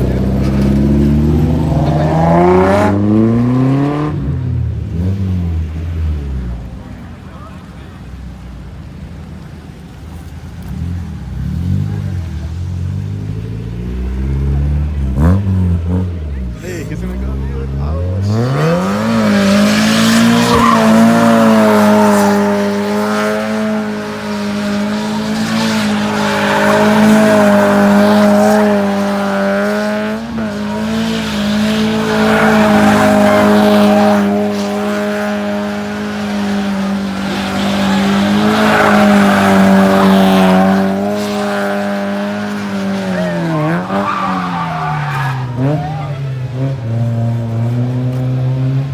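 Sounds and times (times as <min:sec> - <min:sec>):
car engine at high revs: 0:00.0 - 0:48.9
tyres squealing on pavement: 0:16.5 - 0:46.9.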